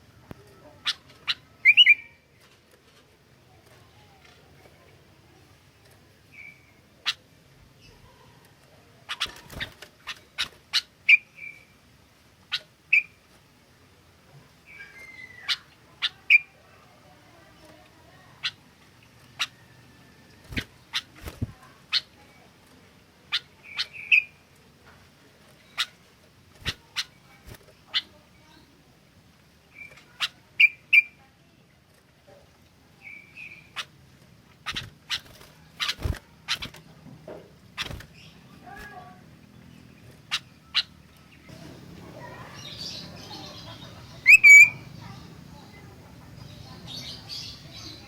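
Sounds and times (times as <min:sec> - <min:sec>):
bird chips and whistled notes: 0:44.2 - 0:44.9.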